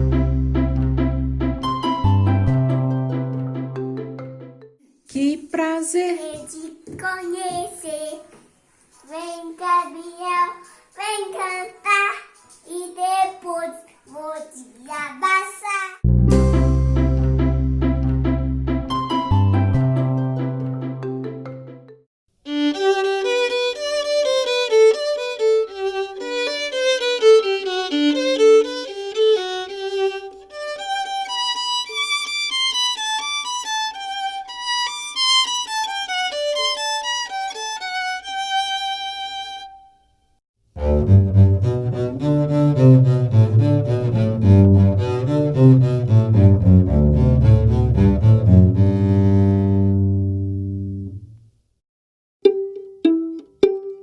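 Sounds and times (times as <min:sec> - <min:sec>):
violin bowed melody: 0:00.0 - 0:04.2, 0:16.1 - 0:21.0, 0:22.4 - 0:39.9, 0:40.8 - 0:50.5, 0:52.4 - 0:54.0
double bass bowed melody: 0:00.0 - 0:04.6, 0:16.0 - 0:21.3, 0:40.8 - 0:51.3.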